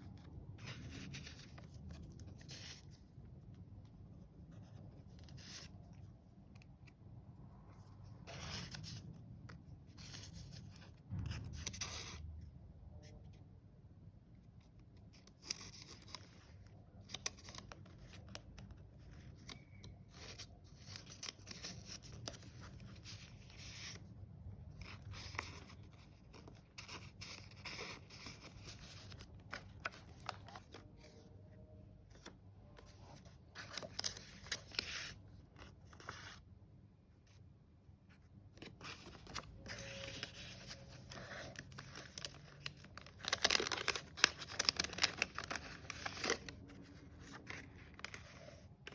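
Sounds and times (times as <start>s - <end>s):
paper rustling and crinkling: 0.1s - 3.1s, 15.0s - 24.0s, 24.7s - 31.3s, 32.0s - 36.4s, 38.5s - 48.9s.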